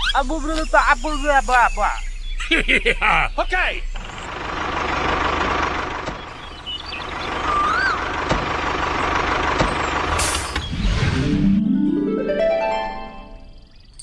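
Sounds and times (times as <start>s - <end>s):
small motor humming: 0.0s - 2.0s, 3.9s - 10.6s
rising and falling chirp: 0.0s - 14.0s.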